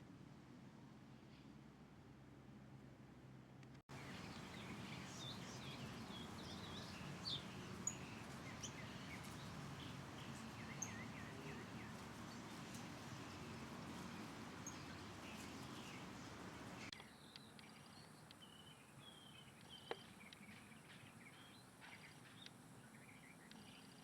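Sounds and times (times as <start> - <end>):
faint steady background noise: 0.0 - 24.0
birds chirping and whistling: 3.9 - 16.9.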